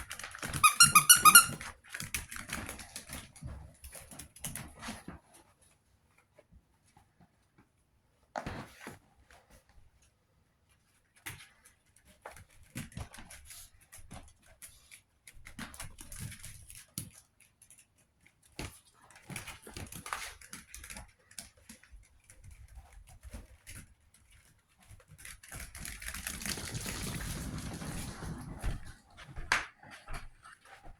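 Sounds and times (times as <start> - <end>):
puppies scuffling: 0.1 - 5.4, 19.1 - 30.9.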